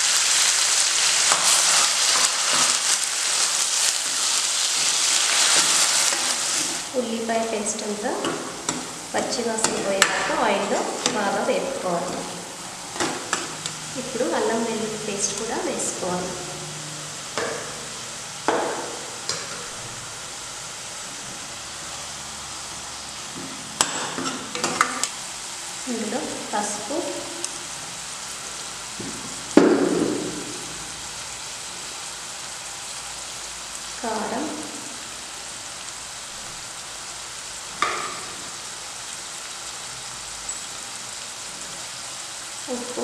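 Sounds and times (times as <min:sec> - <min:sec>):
paste sizzling in hot oil: 0:00.0 - 0:43.0
spatula knocking on pan: 0:17.4 - 0:17.8, 0:18.5 - 0:19.6.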